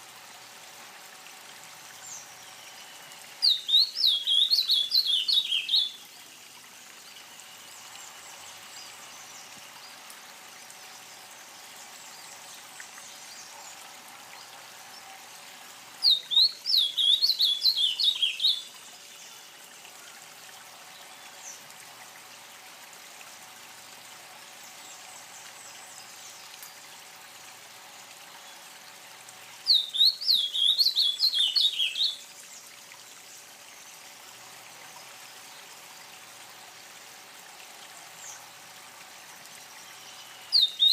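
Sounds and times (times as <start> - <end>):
steady background hiss: 0.0 - 40.9
songbird whistling: 3.4 - 6.0, 16.0 - 18.7, 29.7 - 32.2, 40.0 - 40.9.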